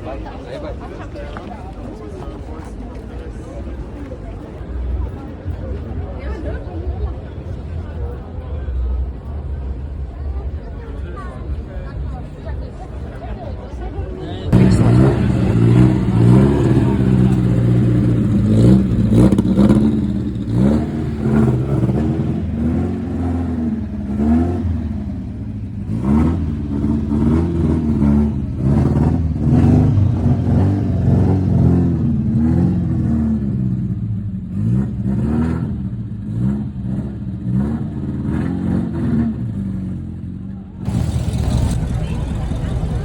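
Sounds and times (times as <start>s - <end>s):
car engine running at low revs: 14.2s - 43.0s.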